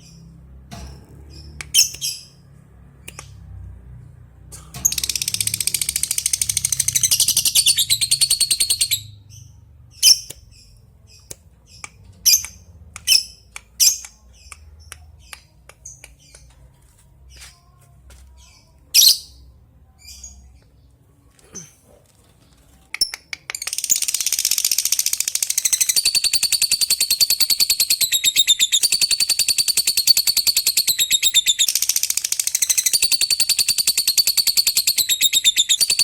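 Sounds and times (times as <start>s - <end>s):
bird chirps and ticks: 4.8s - 9.1s, 9.9s - 16.6s, 22.9s - 36.0s
lovebird rattling chatter: 23.6s - 36.0s.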